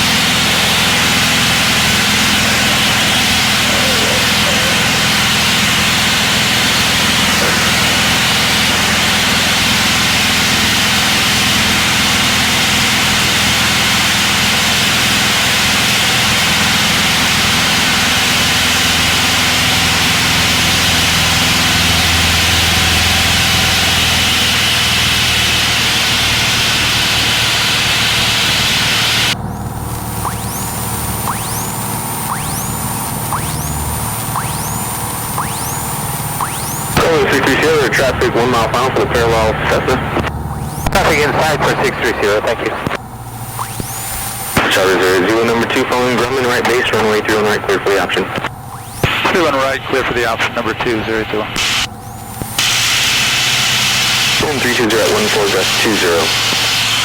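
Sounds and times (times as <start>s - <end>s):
constant rush of noise: 0.0s - 23.2s
small plane engine running: 0.0s - 57.0s.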